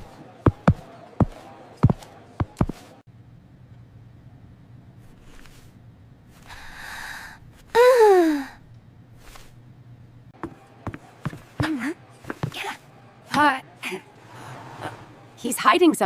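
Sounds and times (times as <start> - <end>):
person gasping: 6.5 - 8.6
person sighing loudly: 6.6 - 8.6.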